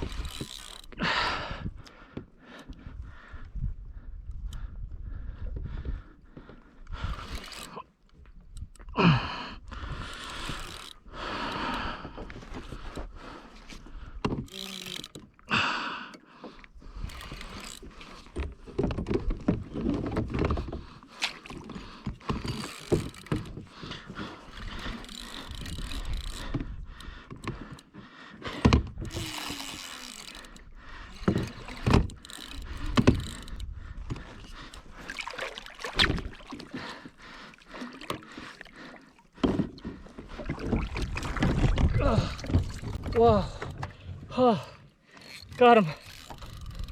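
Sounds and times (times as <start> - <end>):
gear knocking and rattling: 0.0 - 0.9, 22.1 - 23.9, 28.7 - 34.8
water sloshing against hull: 0.0 - 46.9.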